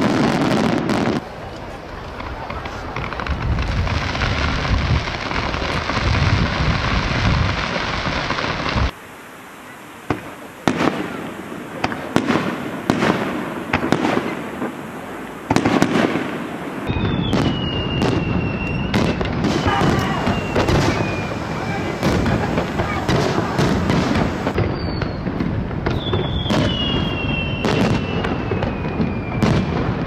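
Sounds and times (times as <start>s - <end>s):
firework fountains hissing crackle: 0.0s - 30.0s
firework shells bursting with bangs: 10.0s - 30.0s
high whistling tone: 16.9s - 21.8s.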